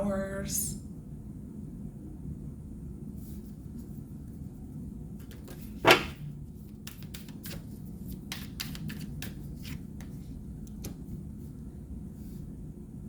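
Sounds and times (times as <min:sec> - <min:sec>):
cards flicking and tapping: 0:05.2 - 0:06.2, 0:06.8 - 0:11.0
card slapped down: 0:05.8 - 0:06.2.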